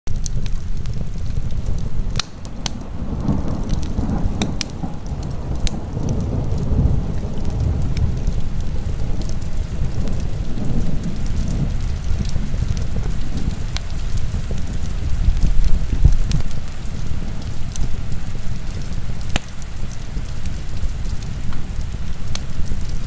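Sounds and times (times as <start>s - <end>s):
heavy rain: 0.1s - 23.0s
wood fire popping and crackling: 0.1s - 23.0s.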